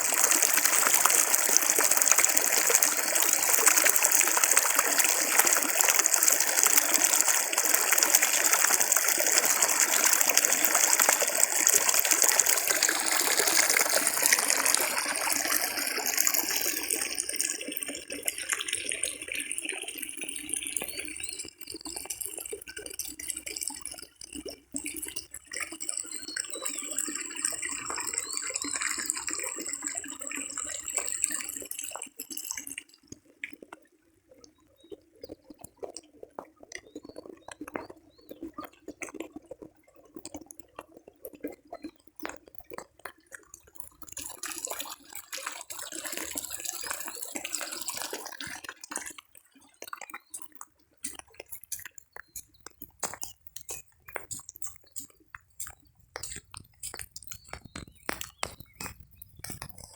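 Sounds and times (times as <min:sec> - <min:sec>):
water rushing: 0:00.0 - 0:19.0
small clicks: 0:51.1 - 0:59.9.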